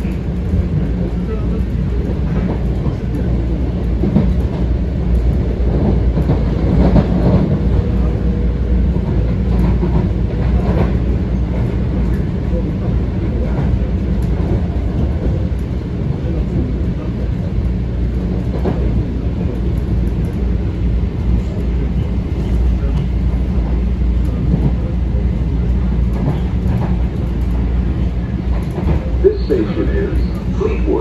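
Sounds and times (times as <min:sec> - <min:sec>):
train wheels rumbling on track: 0:00.0 - 0:31.0.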